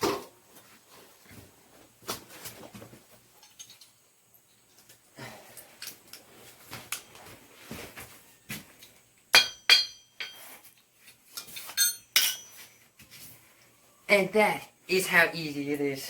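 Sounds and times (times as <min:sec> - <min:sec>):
metal tools clinking on steel: 0:03.4 - 0:04.6, 0:09.4 - 0:12.8
ringing metal strikes: 0:09.3 - 0:10.5.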